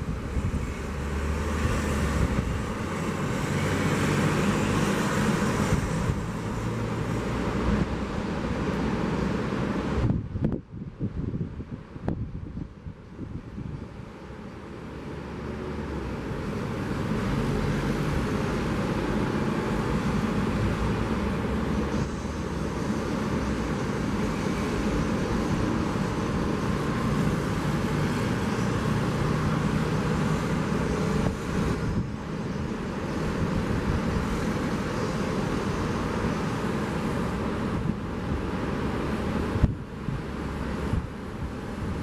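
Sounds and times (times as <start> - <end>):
wind: 0.0 - 42.0
surf rushing: 14.7 - 42.0.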